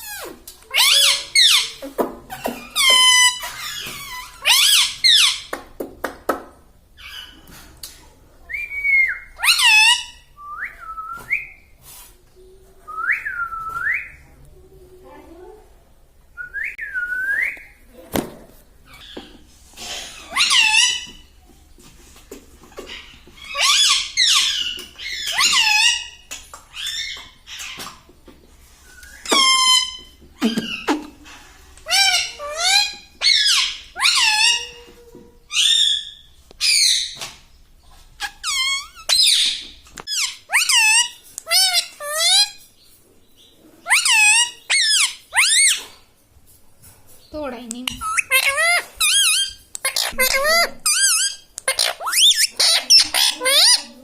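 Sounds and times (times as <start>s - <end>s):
loud parrot calls: 38.2s - 42.6s, 43.8s - 45.8s, 47.9s - 53.9s
parrot whistling: 48.0s - 53.8s
parrot clicks: 49.7s - 49.9s, 51.6s - 51.9s.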